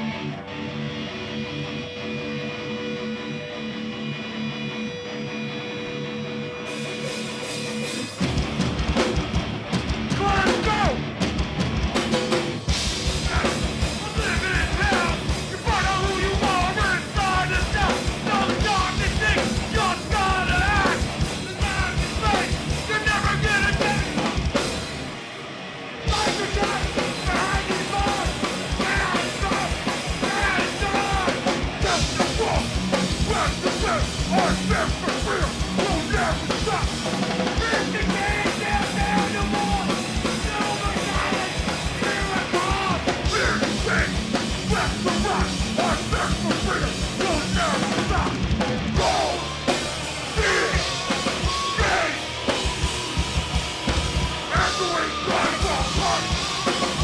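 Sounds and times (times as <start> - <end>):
punk band playing live: 0.0 - 57.0
pounding drum kit: 6.7 - 57.0.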